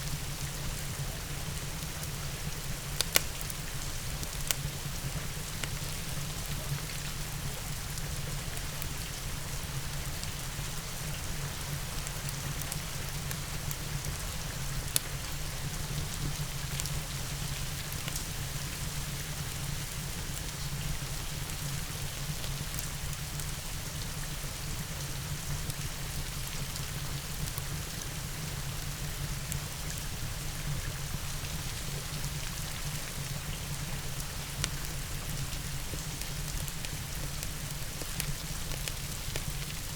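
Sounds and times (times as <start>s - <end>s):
steady rain: 0.0s - 39.9s
fireplace crackles: 1.5s - 9.0s, 34.0s - 39.9s.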